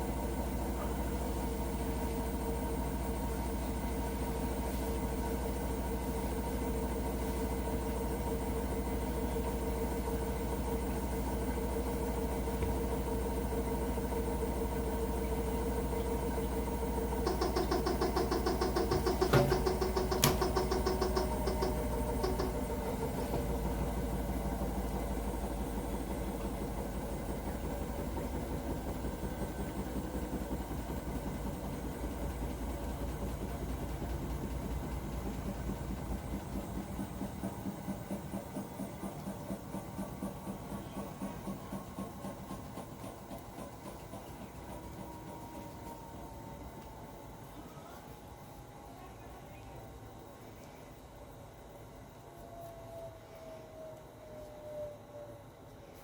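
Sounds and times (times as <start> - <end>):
washing machine humming: 0.0 - 56.0
fast rattle with clicks: 17.0 - 24.2, 26.4 - 46.0.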